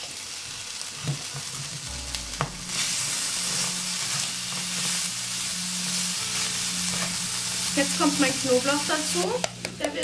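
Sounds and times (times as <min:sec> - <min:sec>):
meat sizzling in a frying pan: 0:00.0 - 0:01.9, 0:02.6 - 0:09.5.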